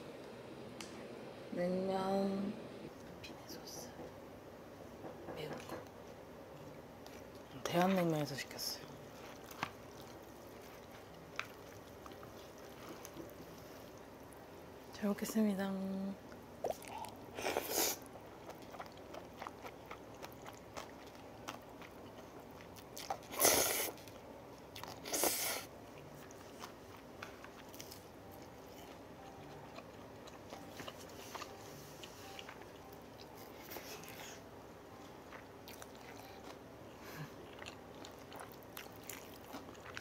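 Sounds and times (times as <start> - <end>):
chewing noodles: 8.8 - 14.4, 16.6 - 34.4, 35.0 - 40.0.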